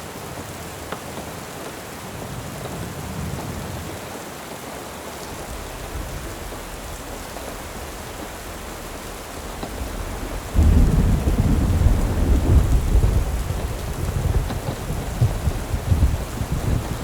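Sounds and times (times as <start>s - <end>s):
steady rain falling: 0.0s - 17.0s
rolling thunder: 5.2s - 17.0s.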